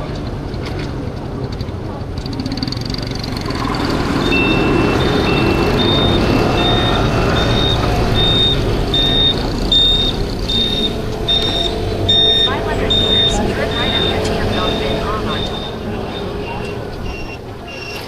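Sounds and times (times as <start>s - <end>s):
city traffic rumble: 0.0s - 18.0s
scooter engine: 0.0s - 18.0s
high electronic beeps: 3.5s - 18.0s
lower beep: 3.8s - 18.0s.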